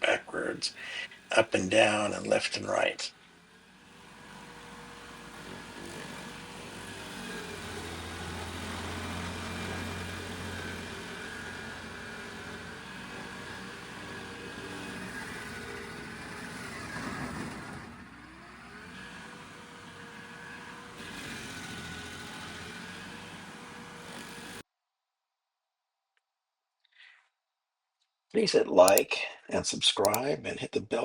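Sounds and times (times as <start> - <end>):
stump grinder engine running: 0.0 - 24.6.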